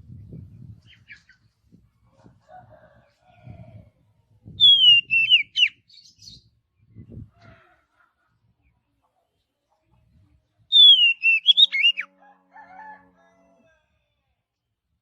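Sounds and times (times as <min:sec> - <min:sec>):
bird singing whistled phrase: 0:04.6 - 0:05.8, 0:10.7 - 0:12.1.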